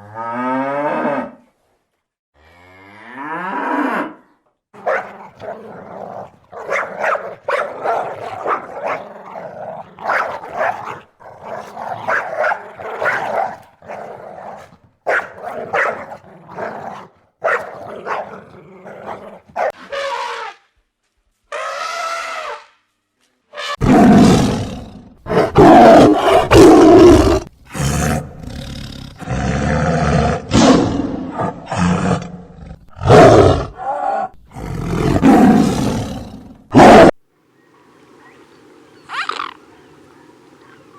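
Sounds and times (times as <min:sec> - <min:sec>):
deep animal calls: 0:39.1 - 0:39.7
short animal calls: 0:39.1 - 0:40.9.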